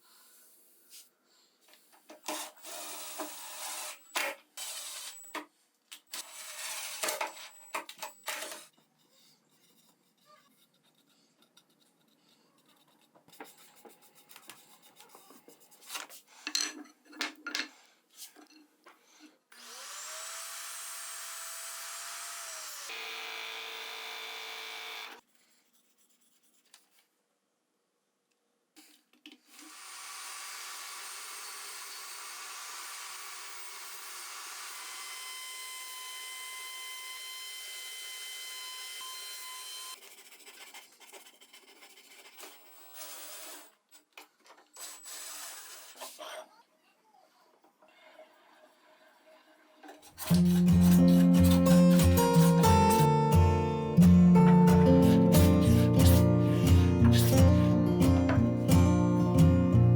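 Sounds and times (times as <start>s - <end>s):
small power tool whining: 19.5s - 25.2s, 29.5s - 40.0s.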